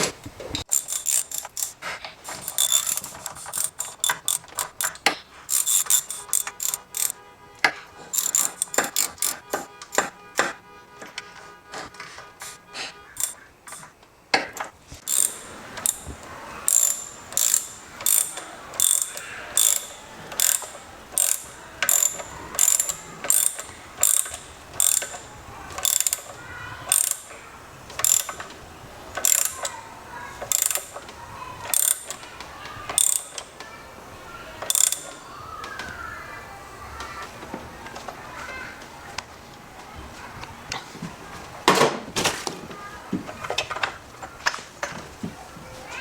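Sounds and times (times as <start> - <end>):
ratchet wrench clicking: 0.6 - 7.2, 8.1 - 10.1, 13.2 - 13.9, 15.0 - 33.7, 34.5 - 35.9.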